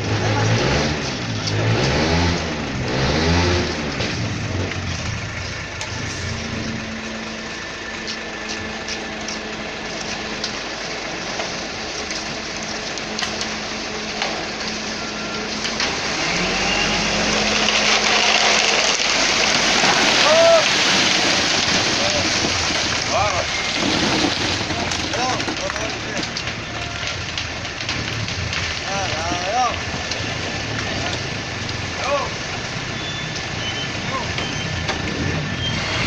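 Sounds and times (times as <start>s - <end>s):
diesel truck engine idling: 4.2s - 20.7s
rushing noise: 15.2s - 27.3s, 27.9s - 36.0s.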